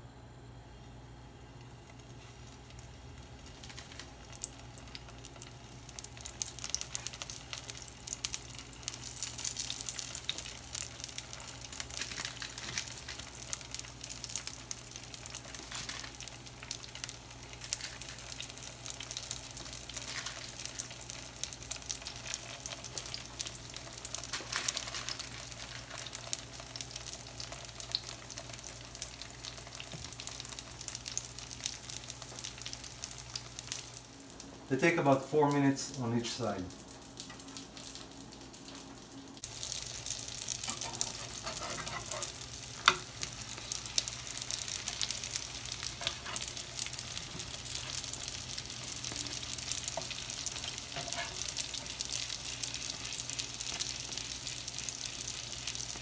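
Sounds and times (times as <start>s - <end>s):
dough frying in hot oil: 1.3s - 56.0s.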